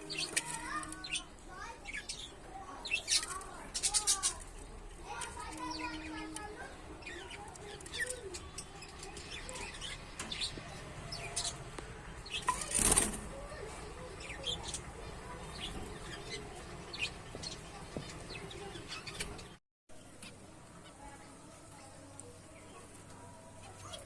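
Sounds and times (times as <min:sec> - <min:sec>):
wings fluttering: 0:11.4 - 0:14.4.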